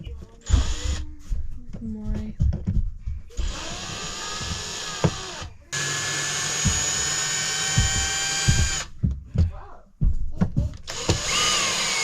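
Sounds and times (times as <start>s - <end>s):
power drill running: 0.4s - 1.0s, 3.4s - 8.9s, 10.9s - 12.0s.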